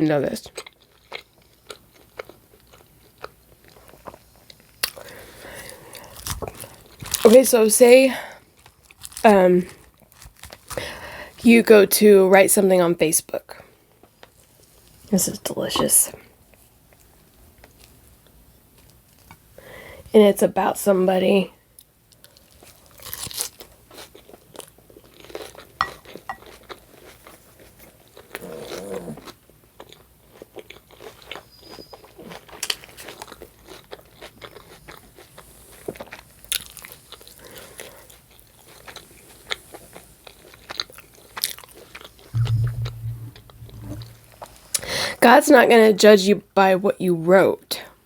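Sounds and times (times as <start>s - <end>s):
chewing and crunching food: 0.2s - 11.4s, 13.5s - 15.1s, 21.6s - 42.2s
short low hum: 42.4s - 44.4s.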